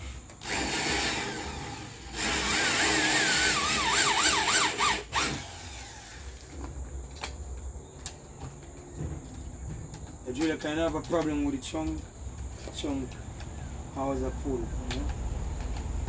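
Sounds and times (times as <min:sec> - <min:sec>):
power drill whining: 0:00.0 - 0:06.6.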